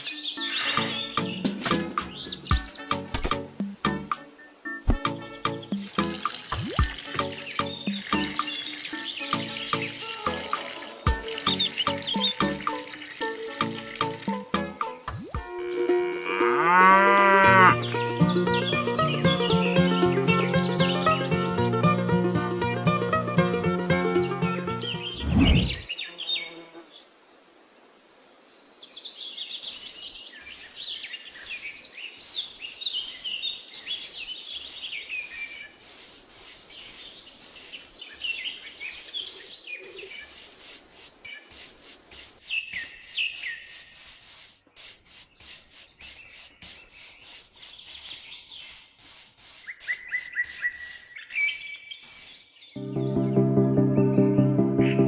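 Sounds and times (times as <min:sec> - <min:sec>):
birds chirping: 0:00.0 - 0:15.9, 0:17.5 - 0:26.6, 0:28.1 - 0:53.4
rubbing or scraping strokes: 0:35.1 - 0:39.2, 0:39.9 - 0:52.6.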